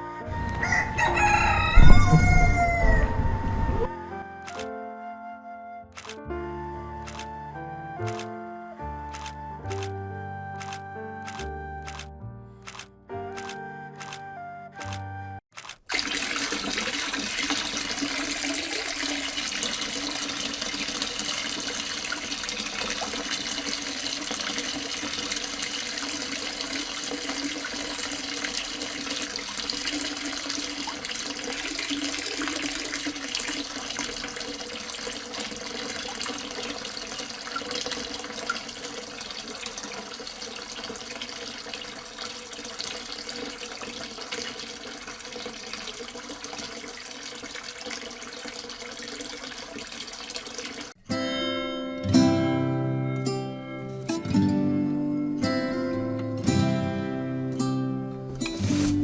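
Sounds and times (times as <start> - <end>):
water running steadily: 0.5 - 3.9, 15.9 - 51.0.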